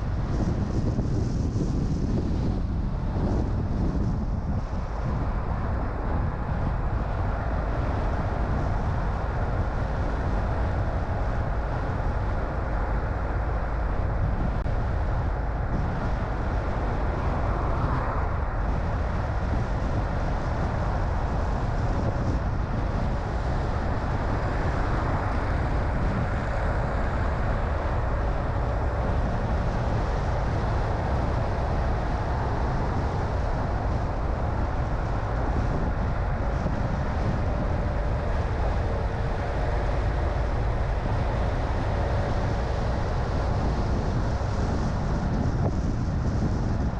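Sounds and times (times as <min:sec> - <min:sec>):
car engine and tyre rumble: 0:00.0 - 0:46.9
faint whine: 0:00.0 - 0:46.9.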